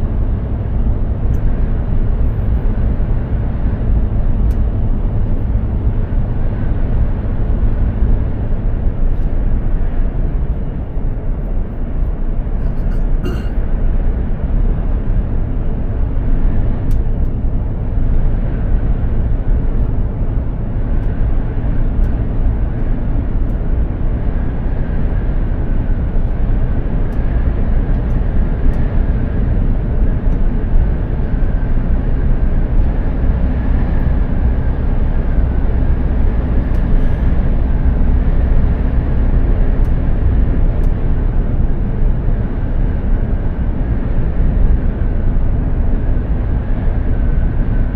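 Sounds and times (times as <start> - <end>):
truck engine and tyre rumble: 0.0 - 47.9
faint whine: 12.1 - 13.8.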